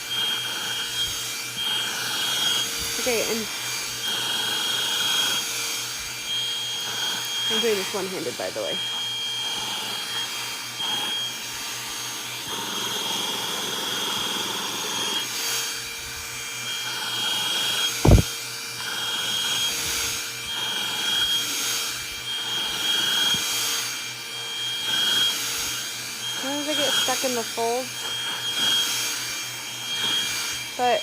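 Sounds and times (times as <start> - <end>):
handheld vacuum whining: 0.0 - 31.0
thump: 18.0 - 18.3.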